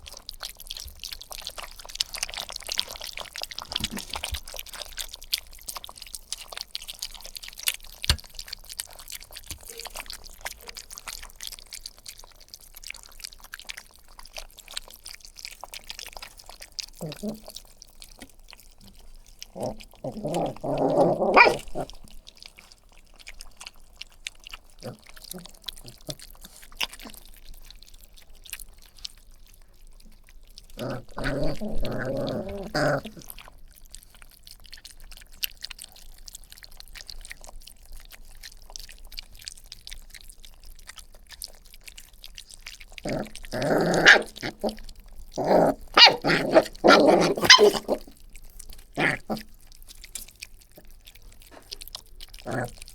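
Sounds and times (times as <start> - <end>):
puppies growling and barking: 0.0 - 11.1, 15.6 - 33.6, 42.7 - 52.9.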